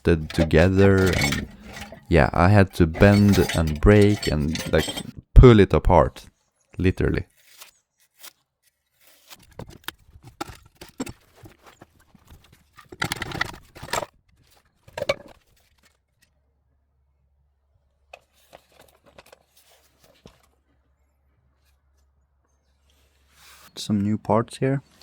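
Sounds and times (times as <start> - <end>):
loud metal scrape: 0.0 - 5.1
metal knocking and clanking: 0.0 - 5.1.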